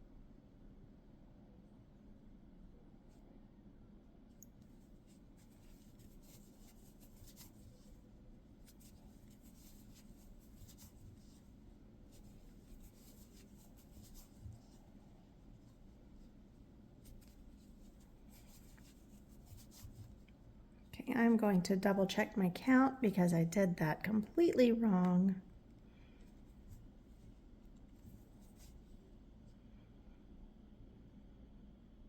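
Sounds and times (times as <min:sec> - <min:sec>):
low room hum: 0:00.0 - 0:32.0
yarn rustling with crochet hook: 0:04.6 - 0:21.4.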